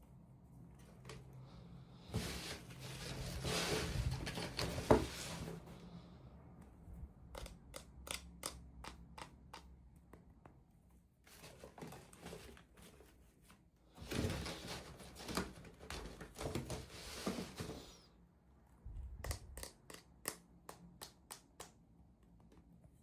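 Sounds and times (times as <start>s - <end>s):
packaging rustling and crinkling: 2.1s - 5.6s.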